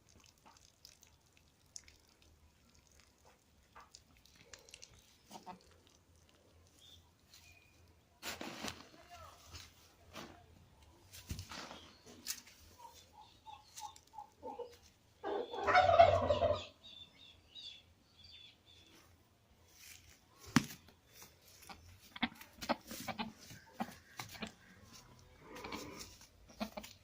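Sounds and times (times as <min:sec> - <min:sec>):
farm bird calling loudly: 0:12.8 - 0:17.0.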